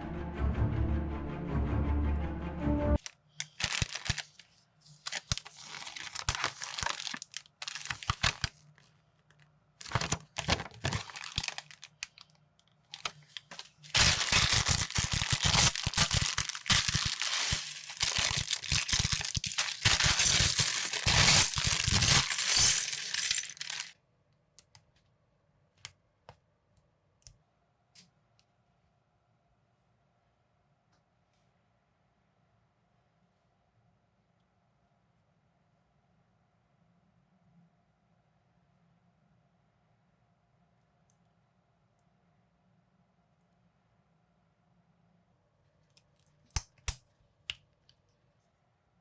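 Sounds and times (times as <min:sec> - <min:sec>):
plastic bags crinkling and tearing: 0:03.0 - 0:08.8, 0:09.8 - 0:12.3, 0:12.9 - 0:23.9
small pieces rattling: 0:03.4 - 0:04.4, 0:05.1 - 0:08.5, 0:09.8 - 0:12.1, 0:13.0 - 0:23.9.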